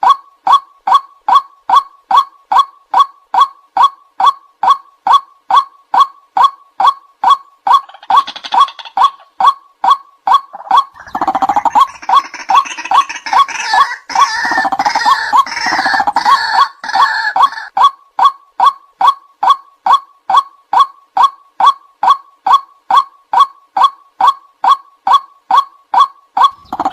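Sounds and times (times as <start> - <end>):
harsh chatter of croaks: 10.5 - 17.7, 26.4 - 26.9.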